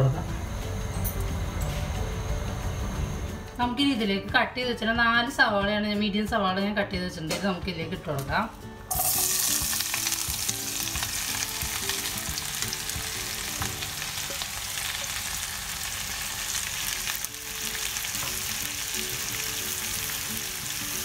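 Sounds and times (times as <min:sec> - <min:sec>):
onions sizzling in oil: 0:08.9 - 0:21.0.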